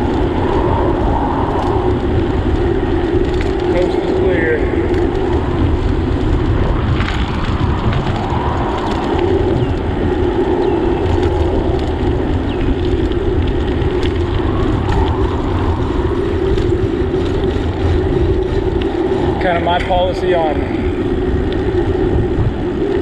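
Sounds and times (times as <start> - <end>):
wind and road noise from bicycle: 0.0 - 23.0.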